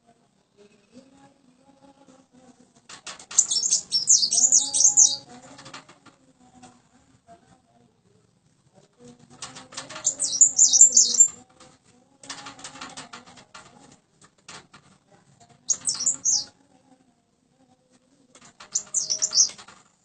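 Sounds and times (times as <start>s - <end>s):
rustling and clicking: 2.8s - 6.8s, 8.8s - 16.5s, 17.9s - 20.0s
bird twittering: 3.4s - 5.3s, 9.9s - 11.4s, 15.7s - 16.5s, 18.7s - 19.6s.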